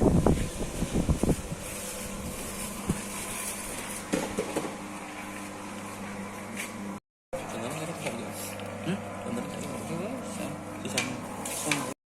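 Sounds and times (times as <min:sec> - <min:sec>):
machine motor hum: 0:07.4 - 0:12.0.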